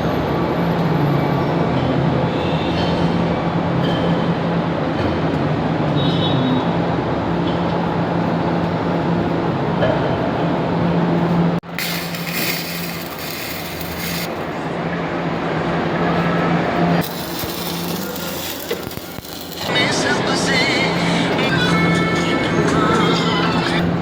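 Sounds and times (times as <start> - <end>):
angle grinder grinding steel: 11.8 - 14.4, 17.0 - 20.0.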